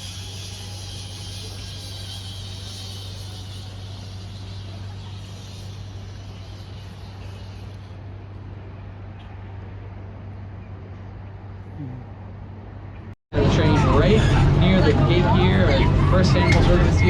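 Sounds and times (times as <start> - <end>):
high hiss: 0.0 - 8.0
tour train engine hum: 0.0 - 17.0.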